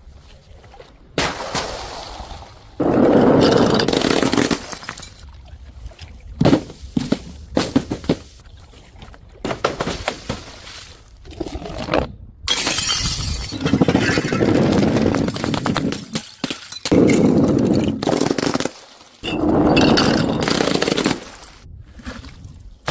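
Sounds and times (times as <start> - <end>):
glass bottles breaking: 3.5 - 5.2, 12.5 - 21.6.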